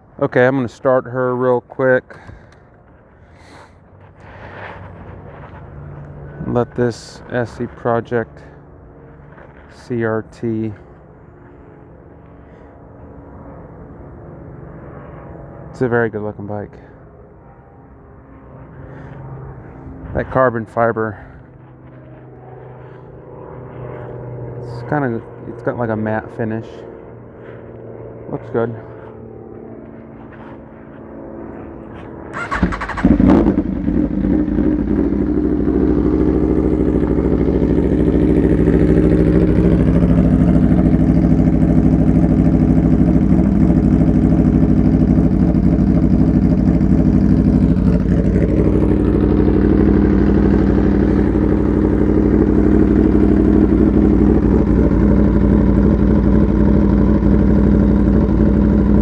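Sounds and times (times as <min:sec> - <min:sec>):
motorcycle engine starting and idling: 0:03.4 - 0:09.9, 0:31.6 - 0:59.0.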